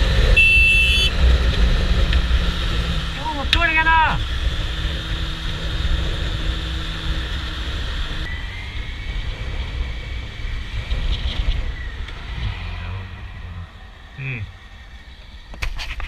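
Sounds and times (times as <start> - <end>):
motorcycle engine drone: 0.0 - 16.0
wind rumble on microphone: 4.2 - 16.0.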